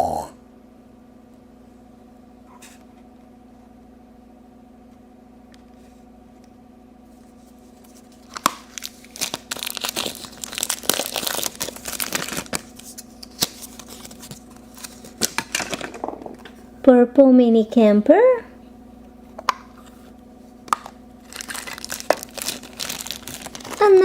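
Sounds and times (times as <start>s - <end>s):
faint steady hum: 0.0s - 24.0s
plastic packaging crinkling and tearing: 7.7s - 16.0s, 20.7s - 24.0s.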